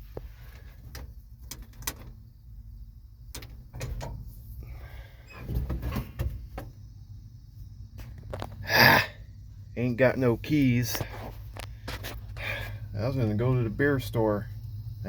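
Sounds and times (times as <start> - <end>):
clunks and rustling: 0.0 - 2.3, 3.3 - 6.8, 10.9 - 12.8
cab fittings clicking and knocking: 0.9 - 2.2, 3.3 - 4.3.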